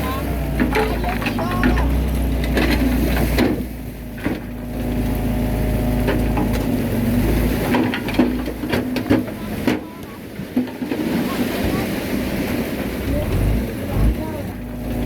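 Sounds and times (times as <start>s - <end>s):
bulldozer diesel engine rumbling: 0.0s - 15.0s
metal clanks and knocks: 0.6s - 4.5s, 7.6s - 11.1s.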